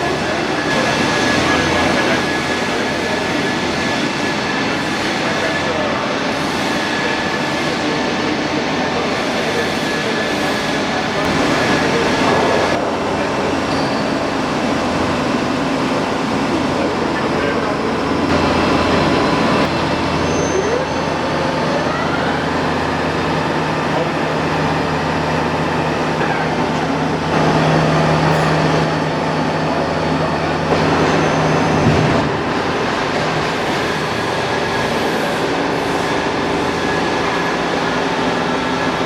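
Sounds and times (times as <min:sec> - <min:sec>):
boring mill mechanical drone: 0:00.0 - 0:39.0
loud low hum: 0:10.8 - 0:20.3.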